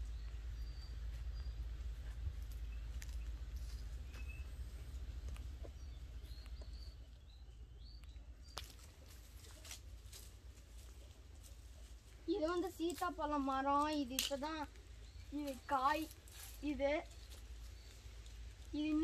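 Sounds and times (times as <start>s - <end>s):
bird chirps: 0.0s - 8.8s
steady low rumble: 0.0s - 19.0s.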